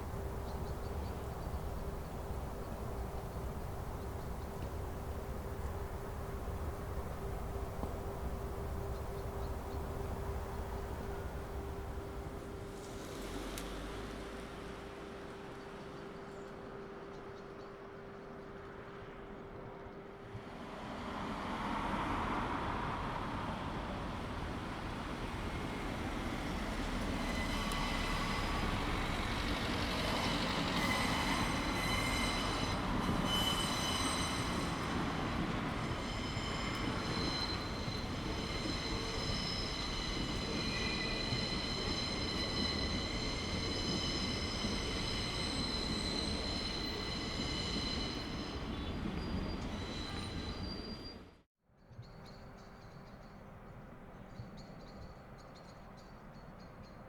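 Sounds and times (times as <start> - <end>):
high sustained squealing tones: 30.3 - 51.0.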